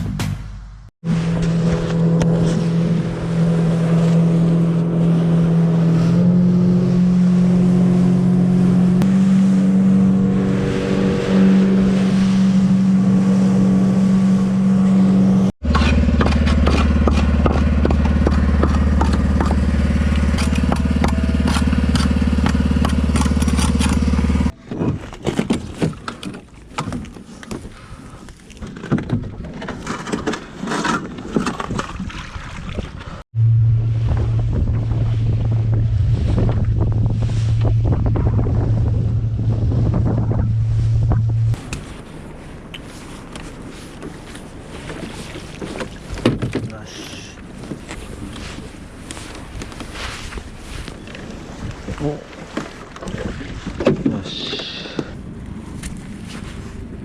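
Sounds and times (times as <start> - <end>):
boat engine running: 0.0 - 24.8, 33.3 - 57.0
gusty wind: 1.0 - 15.5, 31.7 - 41.9
water noise: 1.0 - 57.0.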